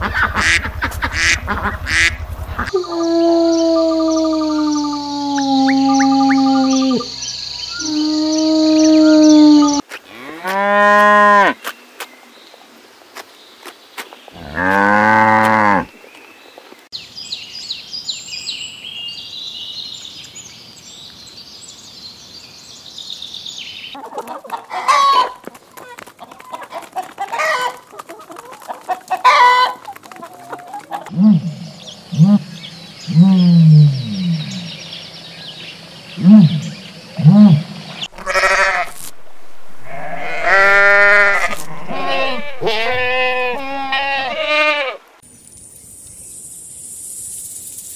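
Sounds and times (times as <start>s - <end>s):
animal calls rising and falling: 0.4s - 7.1s, 39.8s - 45.0s.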